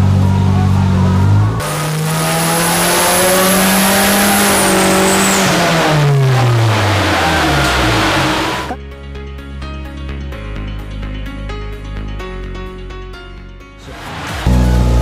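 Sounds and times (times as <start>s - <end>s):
car engine revving: 0.0s - 8.8s, 13.8s - 15.0s
high whine: 0.0s - 8.8s.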